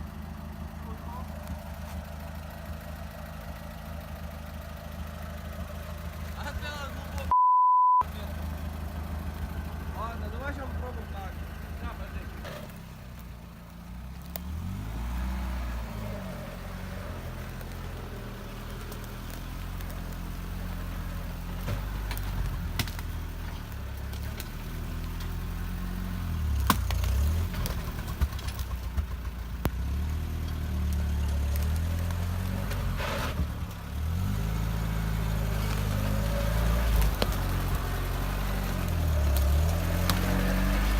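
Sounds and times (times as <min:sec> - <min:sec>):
engine revving: 0:13.9 - 0:40.9.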